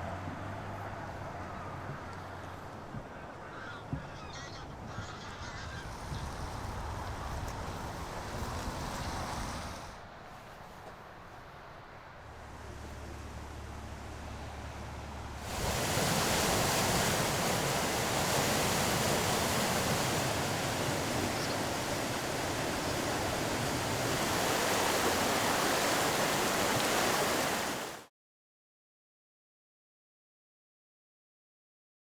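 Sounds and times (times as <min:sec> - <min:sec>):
low engine hum: 0:00.0 - 0:27.9
floodwater rushing: 0:11.6 - 0:28.1.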